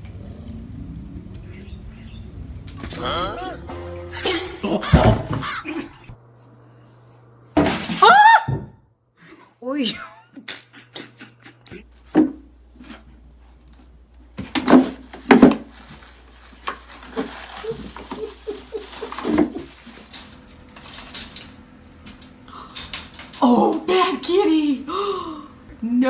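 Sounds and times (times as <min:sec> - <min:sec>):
household objects clattering: 0:04.6 - 0:05.9, 0:14.4 - 0:24.3.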